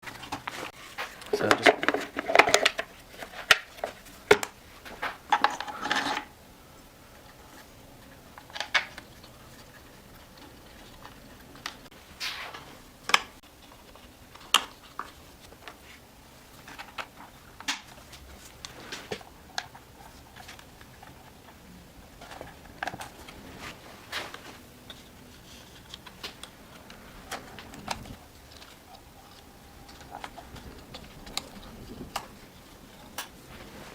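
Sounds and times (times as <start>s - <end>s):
parts rattling and clattering: 0.0s - 6.4s, 7.0s - 33.9s
small hard parts clicking: 0.0s - 6.4s, 7.1s - 12.0s, 24.3s - 33.6s.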